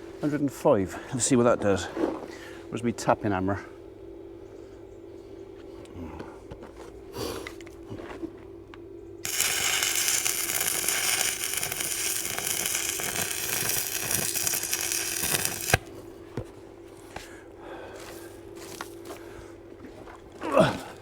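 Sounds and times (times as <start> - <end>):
steady hum: 0.0 - 21.0
welding arc snap: 9.2 - 15.9
arc welding crackling: 9.2 - 16.0.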